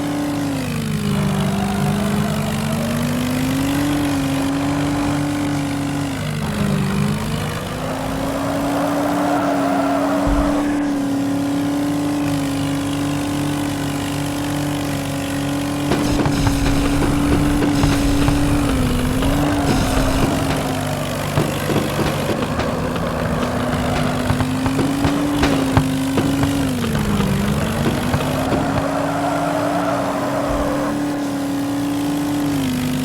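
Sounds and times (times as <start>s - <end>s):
vehicle engine running: 0.0s - 33.0s
crackling and clicks: 15.9s - 29.0s.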